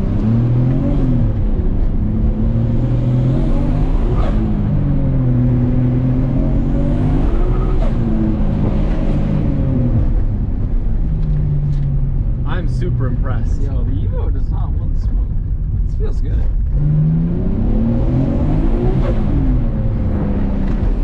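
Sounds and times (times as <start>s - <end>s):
turbo car engine revving: 0.0s - 21.0s.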